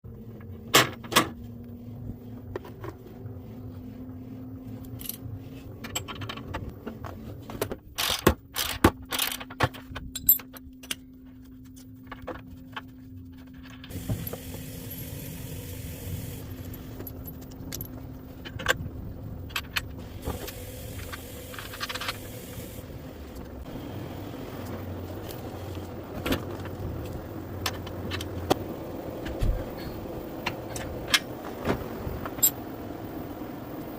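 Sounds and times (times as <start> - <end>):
metal hardware clinking: 8.0 - 11.1.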